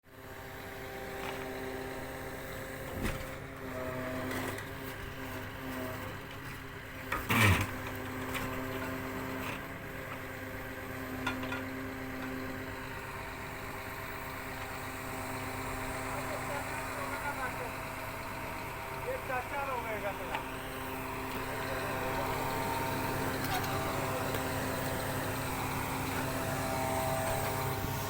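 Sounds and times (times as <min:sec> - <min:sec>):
machine engine running: 0:10.2 - 0:28.0.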